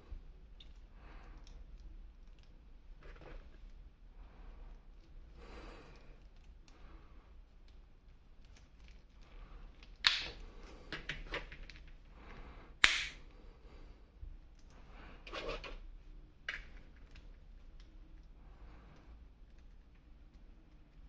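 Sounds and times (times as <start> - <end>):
sharp plastic snaps: 9.8 - 11.2, 12.8 - 13.2.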